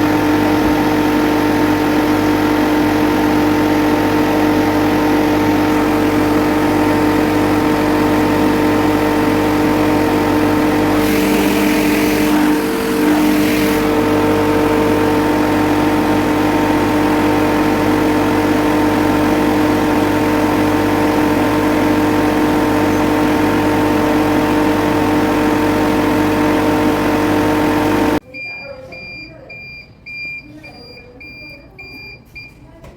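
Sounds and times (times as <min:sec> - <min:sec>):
compressor humming: 0:00.0 - 0:30.4
hiss: 0:11.0 - 0:13.8.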